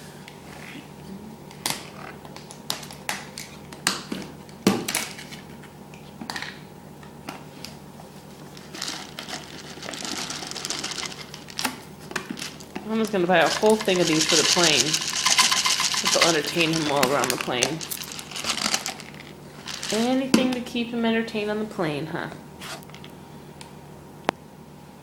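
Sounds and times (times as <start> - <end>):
rustling: 13.4 - 20.2.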